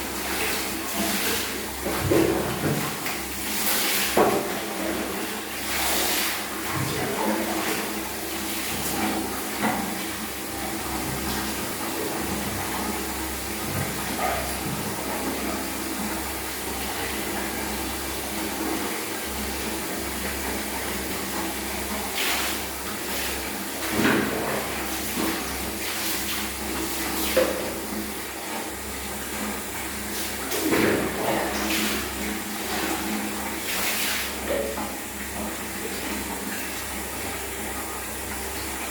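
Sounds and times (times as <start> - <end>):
water running: 0.0 - 38.9
splashes: 21.3 - 37.4.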